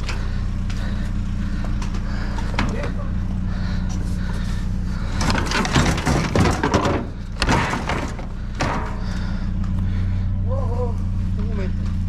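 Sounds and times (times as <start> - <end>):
vehicle engine idling: 0.0 - 12.0
scrap metal clattering: 5.0 - 9.3.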